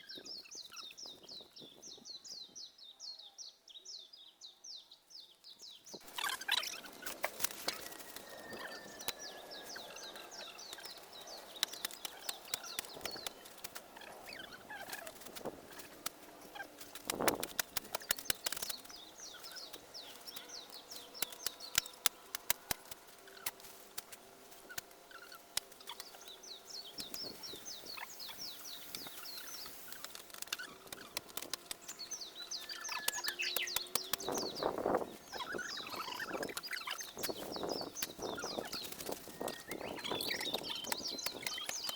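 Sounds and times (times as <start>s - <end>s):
bird singing: 0.0s - 23.6s, 24.6s - 41.9s
sharp clicks and taps: 16.9s - 19.0s.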